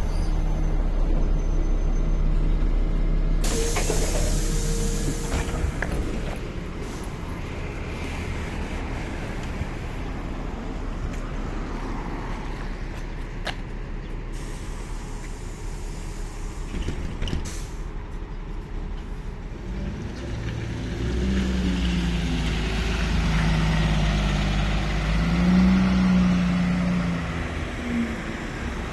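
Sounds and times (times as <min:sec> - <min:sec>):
deep engine drone: 0:00.0 - 0:11.0
bus cabin noise: 0:00.0 - 0:28.9.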